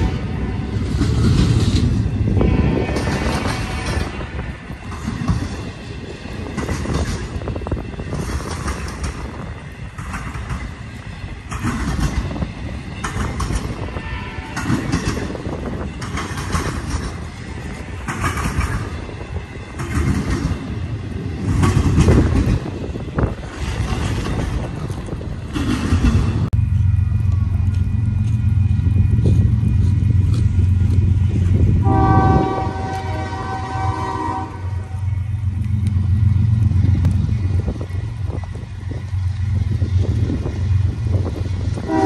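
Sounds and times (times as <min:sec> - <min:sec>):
freight train rumbling past: 0:00.0 - 0:42.0
train wheel clicks: 0:06.4 - 0:13.9, 0:14.5 - 0:19.1, 0:19.7 - 0:20.8, 0:21.4 - 0:31.6, 0:34.8 - 0:41.9.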